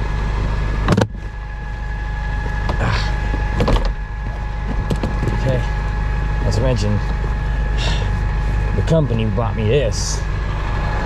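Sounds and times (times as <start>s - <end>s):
vehicle engine idling: 0.0s - 11.0s
sharp clunks and knocks: 2.6s - 5.5s.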